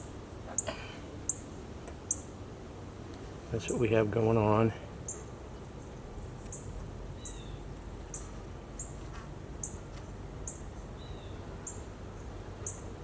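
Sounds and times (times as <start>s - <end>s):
small bird chirping: 1.3s - 1.5s, 2.1s - 2.3s, 5.1s - 9.0s, 9.6s - 13.0s.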